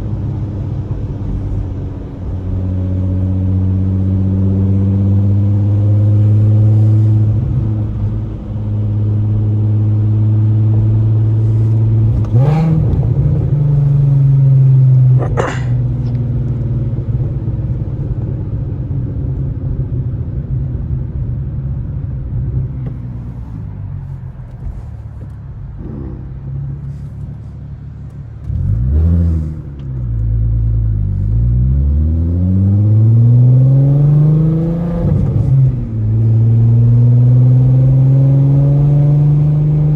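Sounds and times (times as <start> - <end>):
car exhaust droning: 1.4 - 39.9.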